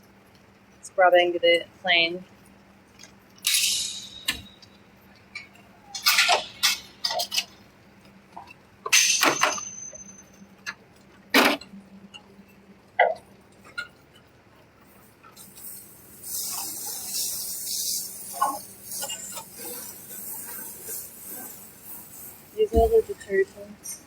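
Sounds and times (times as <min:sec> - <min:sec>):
scrapes and clinks of washing gear: 0:03.0 - 0:07.6, 0:08.3 - 0:11.1, 0:14.8 - 0:24.0.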